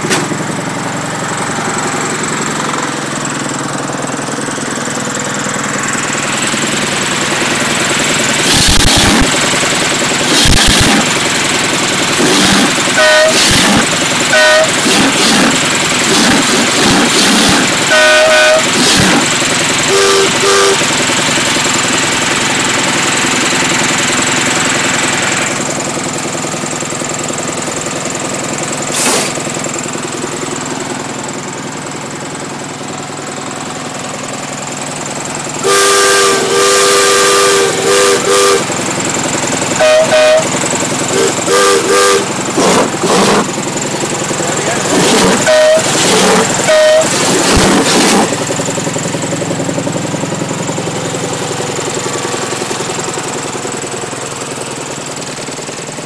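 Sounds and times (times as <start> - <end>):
miniature train engine running: 3.2 - 25.7, 28.8 - 29.4, 34.9 - 56.0
train whistle toots: 12.2 - 15.5, 16.1 - 20.9, 35.6 - 38.7, 39.8 - 43.4, 44.9 - 48.3
low horn toots: 12.2 - 21.0, 35.6 - 38.7, 39.7 - 43.5, 44.7 - 48.3.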